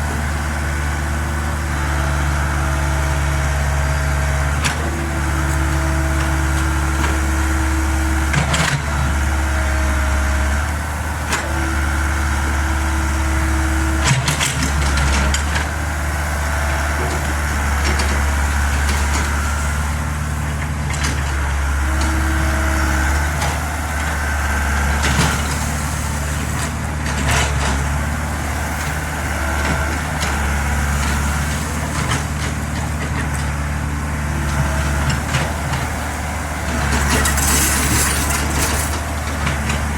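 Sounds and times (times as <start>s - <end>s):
diesel engine running: 0.0s - 39.9s
hydraulic whine: 34.5s - 39.9s.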